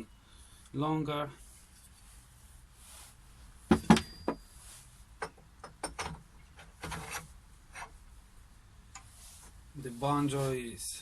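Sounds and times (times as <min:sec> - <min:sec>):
metal scrape: 0:06.8 - 0:07.9.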